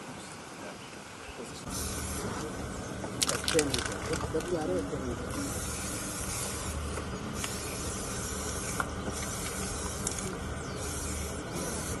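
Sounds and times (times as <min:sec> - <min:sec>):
steady outdoor hiss: 0:00.0 - 0:12.0
higher hiss: 0:01.6 - 0:02.7, 0:05.2 - 0:12.0.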